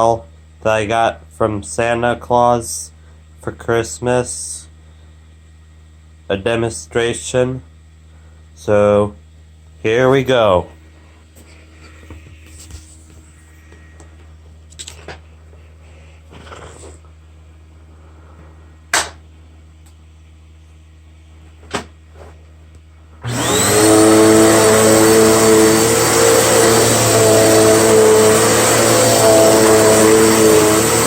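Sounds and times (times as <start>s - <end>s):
vacuum cleaner motor whine: 23.2s - 31.0s.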